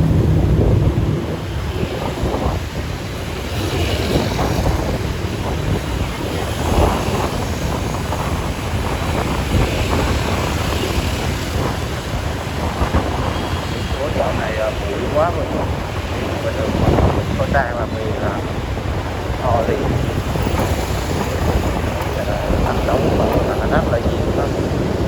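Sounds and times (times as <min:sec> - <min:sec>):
street traffic rumble: 0:00.0 - 0:25.0
wind buffeting microphone: 0:00.0 - 0:25.0.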